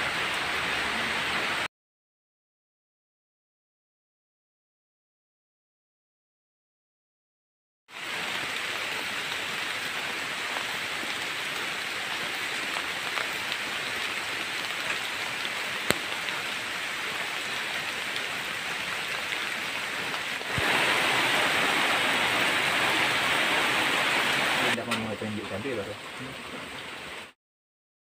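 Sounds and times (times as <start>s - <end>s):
heavy rain falling: 0.0s - 1.7s, 7.9s - 27.4s.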